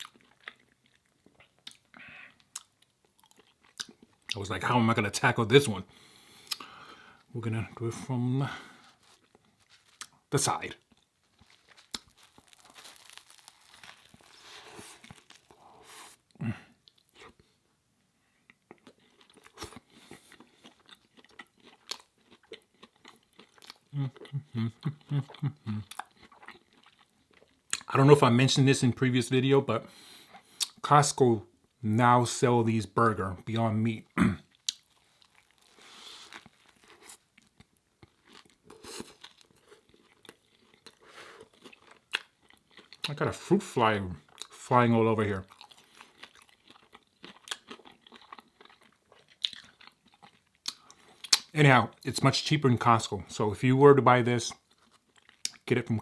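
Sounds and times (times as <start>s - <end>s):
person chewing food: 0.0s - 4.4s, 5.9s - 7.3s, 8.5s - 17.6s, 18.4s - 27.9s, 34.4s - 43.2s, 44.2s - 44.6s, 45.4s - 51.5s, 54.6s - 55.6s
burger bite crunching: 8.8s - 16.1s.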